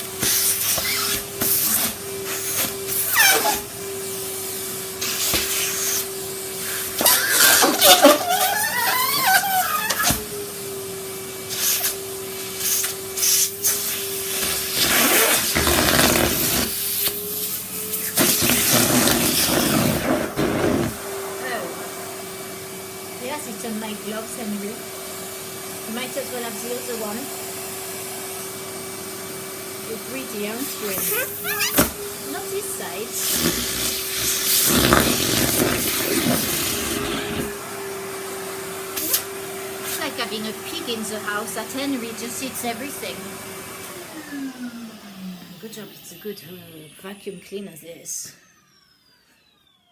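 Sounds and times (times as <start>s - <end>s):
vacuum suction rushes: 0.0s - 47.4s
vacuum cleaner motor whine: 0.0s - 49.9s
suction rush on carpet: 11.4s - 26.9s, 32.4s - 37.6s.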